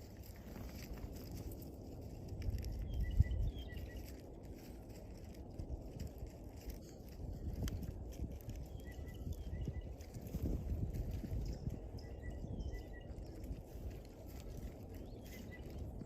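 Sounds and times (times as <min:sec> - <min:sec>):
wind rumble on microphone: 0:00.0 - 0:16.0
faint high bird chirps: 0:02.4 - 0:04.7, 0:07.3 - 0:16.0.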